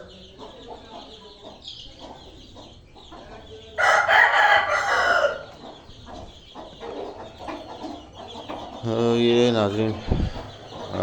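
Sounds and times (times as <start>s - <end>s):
hens clucking faintly: 0.0s - 11.0s
rooster crowing: 3.8s - 5.5s.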